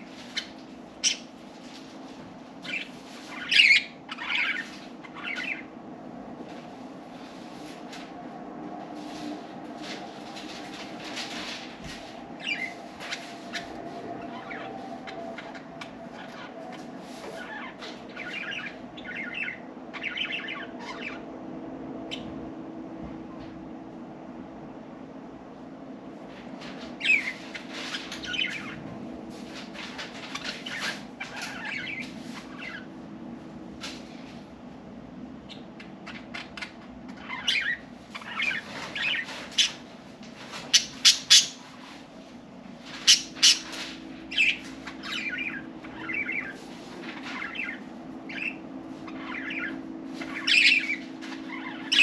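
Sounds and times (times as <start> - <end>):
steady low hum: 0.0 - 52.0
budgerigars chirping: 0.3 - 1.3, 2.6 - 5.7, 12.4 - 21.2, 27.0 - 28.8, 29.8 - 32.9, 35.5 - 39.8, 40.6 - 41.6, 42.9 - 52.0.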